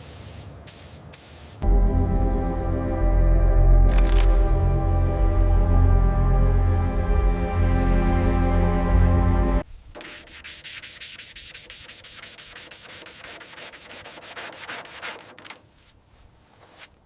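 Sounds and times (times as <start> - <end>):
music: 1.6 - 9.6
sanding strokes on car bodywork: 10.0 - 15.6.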